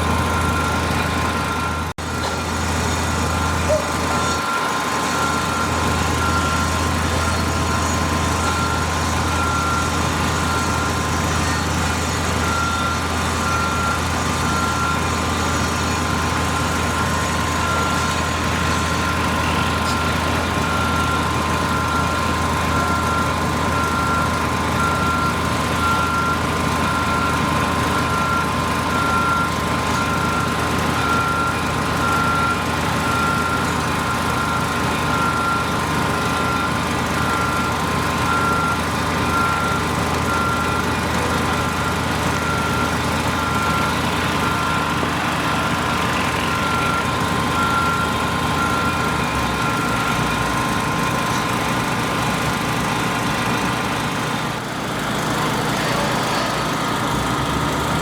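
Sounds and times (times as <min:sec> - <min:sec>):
construction machinery engine hum: 0:00.0 - 0:58.0
backup alarm beeping: 0:12.4 - 0:51.1.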